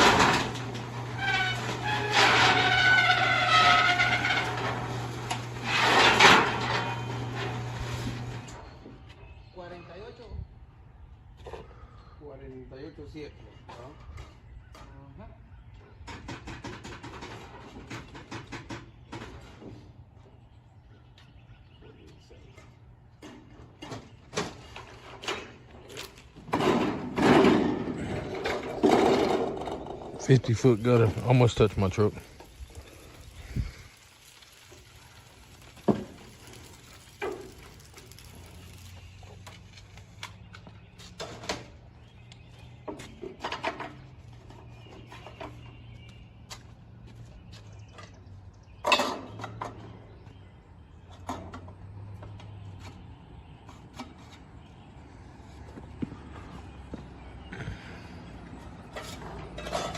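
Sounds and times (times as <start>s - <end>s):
knocks and rattles: 0.0s - 8.3s, 16.0s - 19.8s, 26.3s - 31.6s
gutter machine roll-forming metal: 0.0s - 8.6s.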